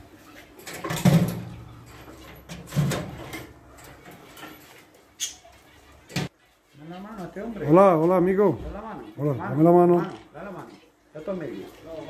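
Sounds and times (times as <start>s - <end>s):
caged birds calling: 5.1s - 6.1s.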